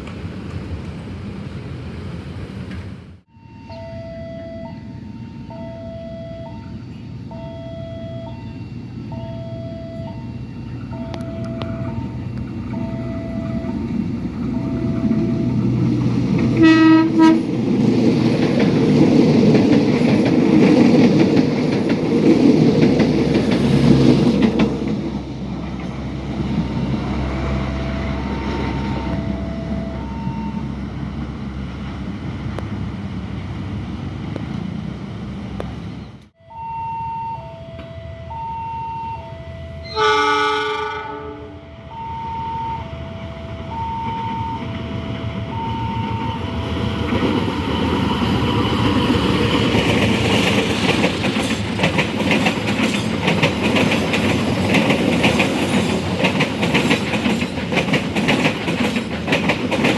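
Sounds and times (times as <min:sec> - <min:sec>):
train rumbling past: 0:00.0 - 0:59.9
two-tone crossing alarm: 0:03.3 - 0:15.9, 0:16.5 - 0:17.5, 0:26.6 - 0:31.0, 0:36.4 - 0:50.6
train horn blast: 0:16.5 - 0:17.5, 0:27.2 - 0:30.8, 0:36.4 - 0:46.6.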